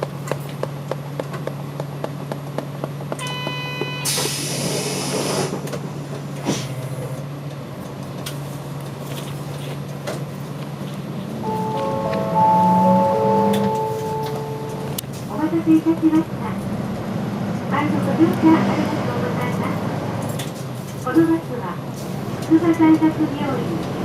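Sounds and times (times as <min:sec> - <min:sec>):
bus engine idling: 0:00.0 - 0:24.0
pneumatic door air hiss: 0:04.1 - 0:05.7
short beeping chime: 0:11.4 - 0:15.0.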